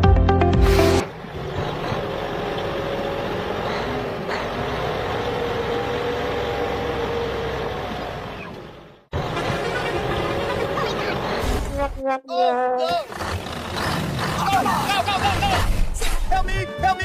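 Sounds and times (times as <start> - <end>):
vehicle engine running: 1.0 - 11.4.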